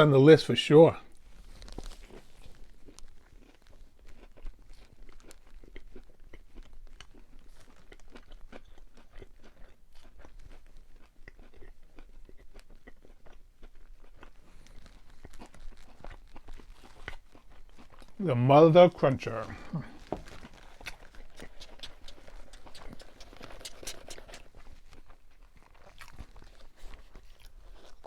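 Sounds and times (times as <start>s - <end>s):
chewing crunchy fried chicken: 0.9s - 28.0s
mouth sounds: 18.2s - 20.1s, 21.2s - 24.6s.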